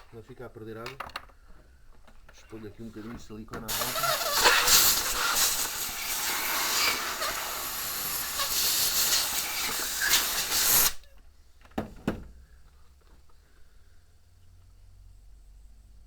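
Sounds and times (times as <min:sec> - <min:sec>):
sealant dispensing hiss: 0:03.7 - 0:11.1.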